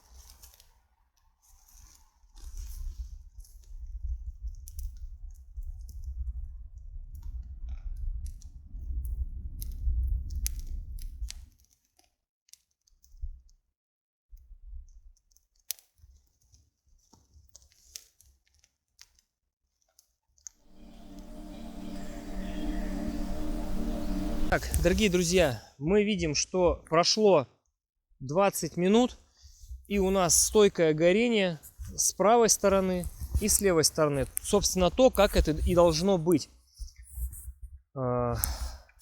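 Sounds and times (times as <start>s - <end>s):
heavy low rumble: 20.7s - 25.6s.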